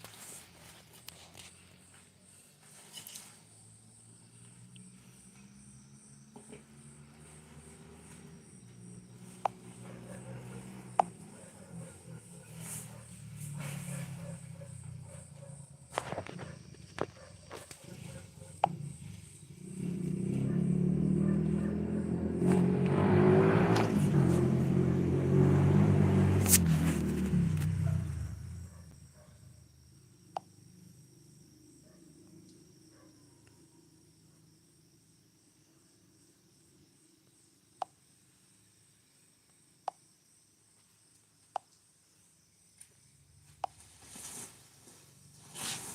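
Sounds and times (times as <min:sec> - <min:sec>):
insects chirring: 0:00.0 - 0:22.8, 0:26.4 - 0:45.9
vehicle engine running: 0:04.2 - 0:29.1.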